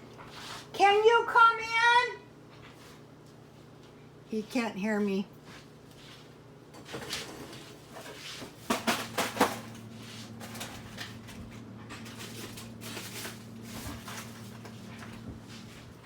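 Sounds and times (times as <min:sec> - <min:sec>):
steady low hum: 0:02.2 - 0:16.0
household things clicking and knocking: 0:06.8 - 0:15.4.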